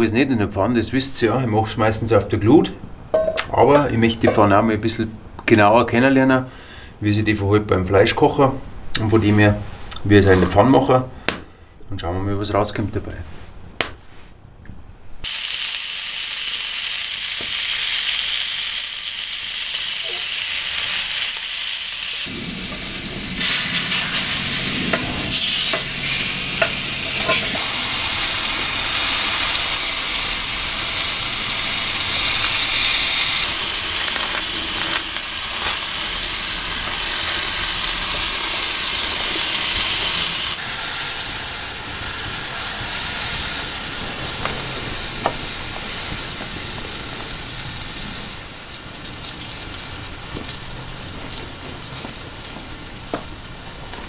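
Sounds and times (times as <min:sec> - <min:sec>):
steak sizzling in a pan: 0:15.2 - 0:52.2.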